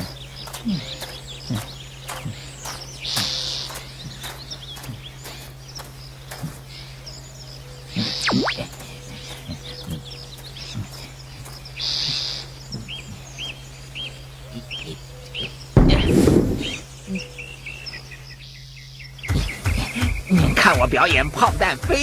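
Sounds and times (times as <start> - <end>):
cartoon bird chirps: 8.0 - 8.7
cartoon falling whistle: 8.2 - 8.7.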